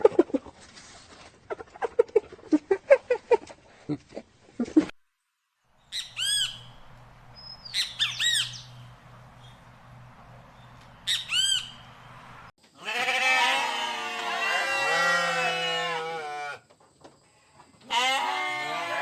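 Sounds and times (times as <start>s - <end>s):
bird squawking: 5.9s - 7.0s, 7.6s - 8.9s, 11.0s - 11.9s
chorus of animal calls: 12.8s - 16.6s, 17.8s - 19.0s.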